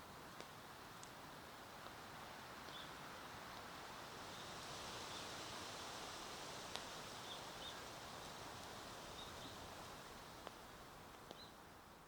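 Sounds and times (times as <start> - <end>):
campfire crackling: 0.1 - 2.1, 5.8 - 11.4.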